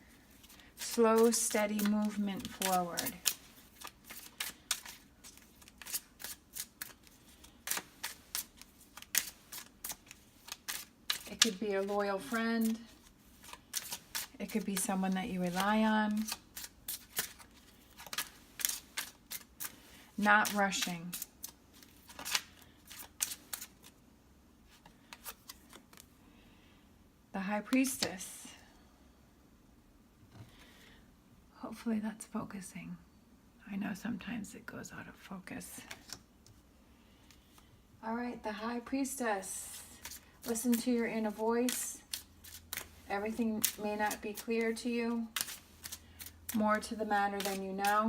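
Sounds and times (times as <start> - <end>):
cards clicking and slapping: 0.4 - 12.8, 13.4 - 23.9, 40.0 - 44.7, 45.3 - 48.0.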